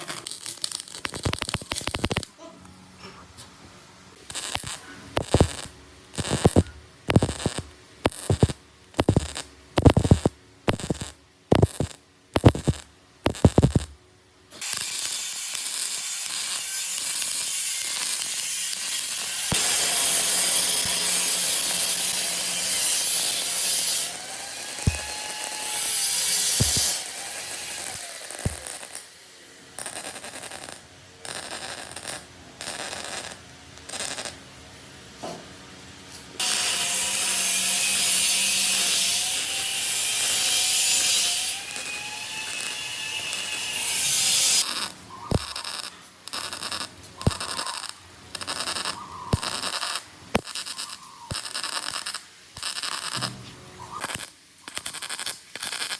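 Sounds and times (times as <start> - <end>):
power tool on metal drum: 4.3 - 13.9, 14.6 - 29.1, 36.4 - 44.9.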